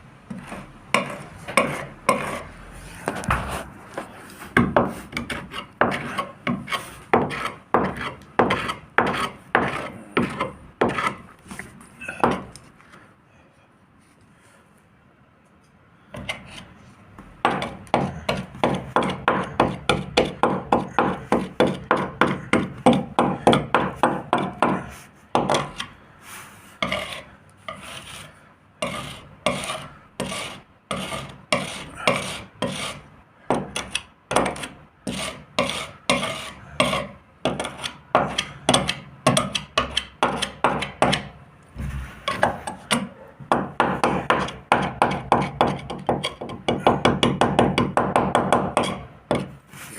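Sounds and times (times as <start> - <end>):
hand sanding boat hull: 4.6 - 11.2, 17.5 - 41.2.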